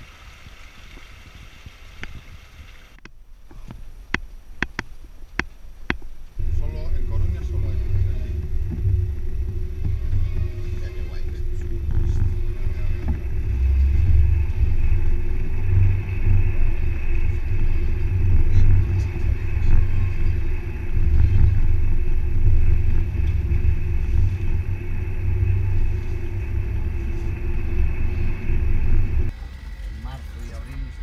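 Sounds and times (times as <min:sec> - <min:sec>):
off-road vehicle engine droning: 0:00.0 - 0:03.1, 0:06.3 - 0:31.0.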